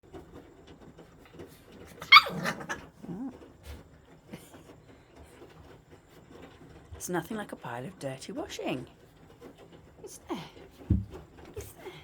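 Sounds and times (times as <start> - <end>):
rustles and clicks: 0.0 - 12.0
puppy yipping: 1.9 - 3.3.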